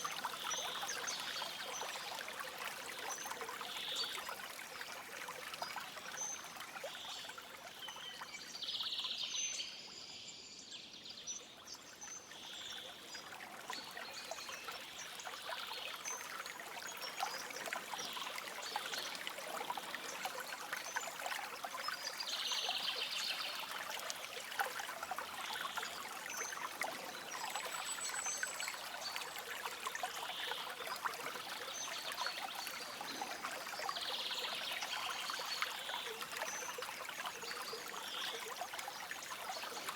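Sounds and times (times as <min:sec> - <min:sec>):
stream babbling over stones: 0:11.8 - 0:39.9.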